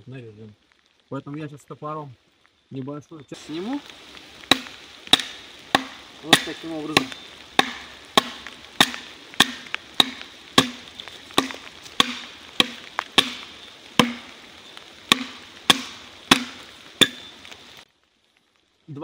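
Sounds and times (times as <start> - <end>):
axe chopping into log: 4.4 - 14.3, 15.1 - 17.3.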